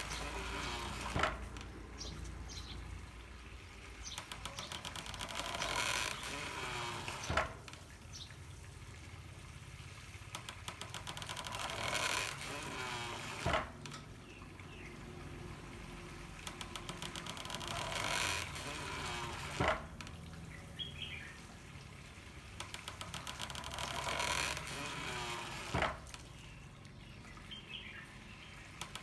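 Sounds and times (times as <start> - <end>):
mill beater knocking: 0.0 - 3.0, 10.2 - 20.1
water flowing through pipes: 0.0 - 29.0.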